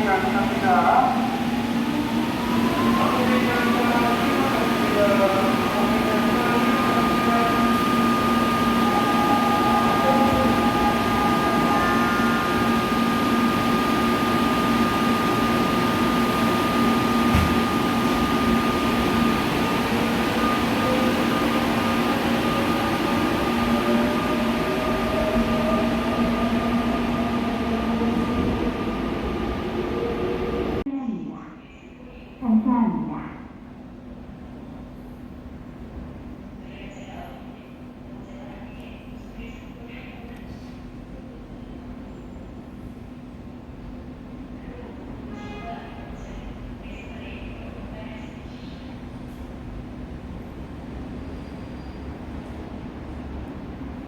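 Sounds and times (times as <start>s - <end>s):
train rolling rumble: 0.0s - 30.9s.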